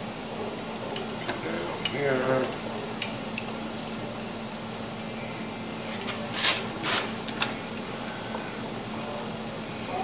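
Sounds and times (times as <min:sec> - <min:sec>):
shop background hum: 0:00.0 - 0:10.0.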